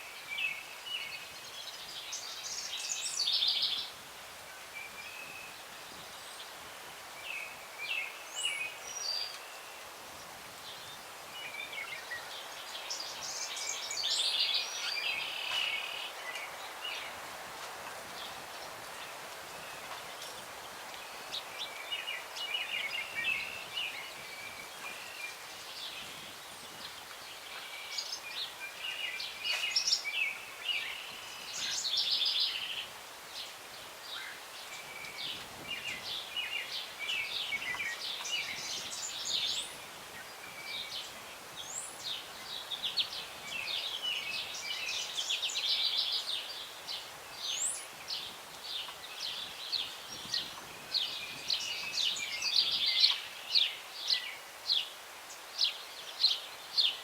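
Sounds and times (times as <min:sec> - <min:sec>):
breeze in trees: 0:00.0 - 0:57.0
songbirds singing: 0:00.0 - 0:57.0.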